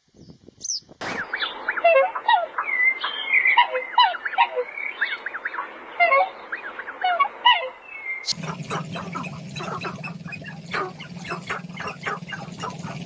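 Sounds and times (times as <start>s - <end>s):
bending bird chirps: 0.6s - 13.0s
many birds calling: 0.6s - 13.0s
low steady drone: 8.3s - 13.0s.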